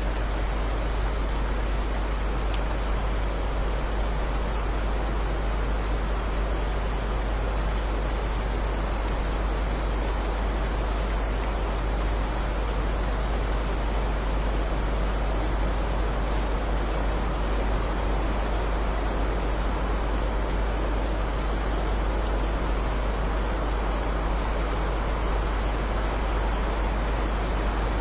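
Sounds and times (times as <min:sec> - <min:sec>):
rain hissing: 0:24.3 - 0:28.0.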